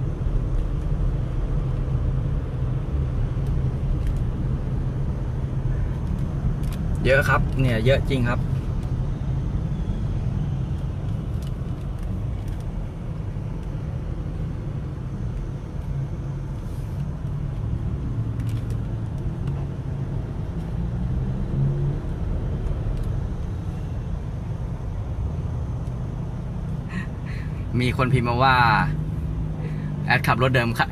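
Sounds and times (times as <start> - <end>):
car engine and tyres rumbling: 0.0 - 30.9.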